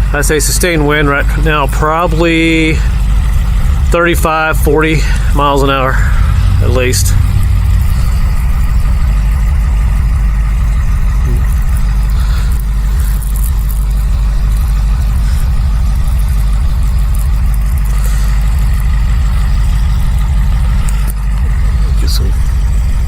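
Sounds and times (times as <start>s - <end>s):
wind buffeting microphone: 2.2s - 23.0s
hiss of blowing snow: 11.3s - 16.6s, 17.8s - 18.7s.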